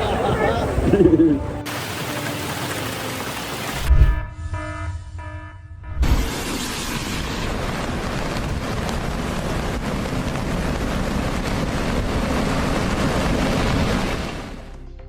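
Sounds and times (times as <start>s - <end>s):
heavy rain: 0.0s - 4.2s, 6.0s - 14.8s
deep rumble: 3.8s - 14.1s.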